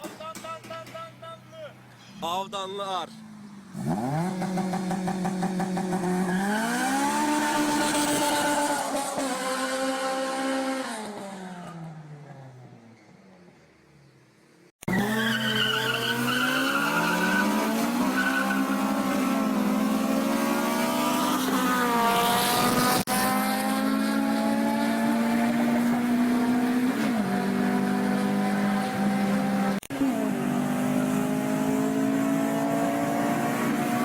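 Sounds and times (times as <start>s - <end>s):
car engine revving high: 3.7s - 11.6s, 14.9s - 34.0s.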